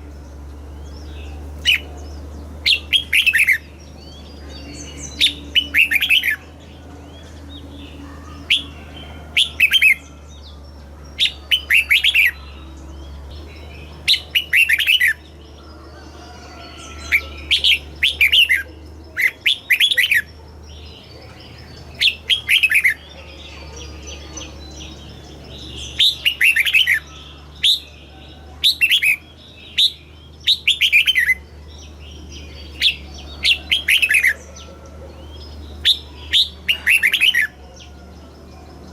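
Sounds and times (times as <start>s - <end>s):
bulbul singing: 0.0s - 38.9s.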